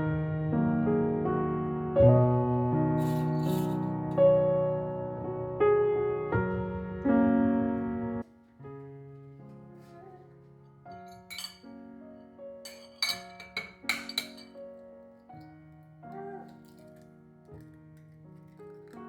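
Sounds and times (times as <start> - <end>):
soft piano music: 0.0 - 19.0
kitchenware clinking: 3.0 - 4.1, 10.9 - 11.9, 12.6 - 14.7, 16.1 - 19.0.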